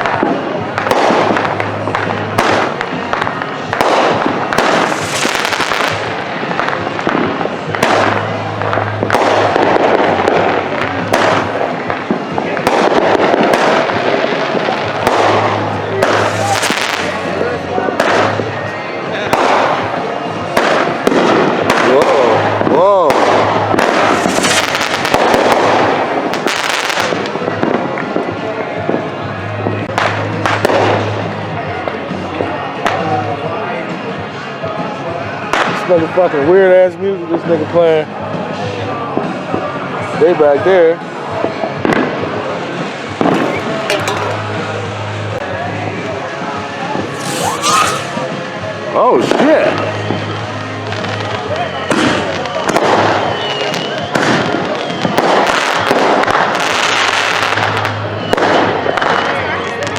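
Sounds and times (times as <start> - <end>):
fireworks bangs and pops: 0.0 - 18.4, 19.3 - 29.0, 29.6 - 31.2, 42.9 - 45.1, 47.1 - 48.4, 50.9 - 59.4
fireworks crackling: 0.0 - 18.4, 23.1 - 27.8, 43.2 - 45.1, 47.1 - 48.4
music: 0.0 - 59.9.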